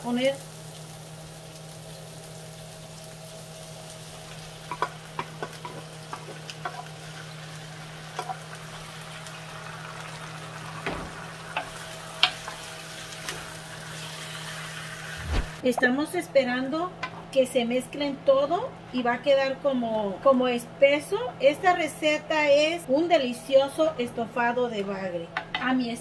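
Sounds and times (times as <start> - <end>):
onion and garlic sizzling in oil: 0.0 - 16.1.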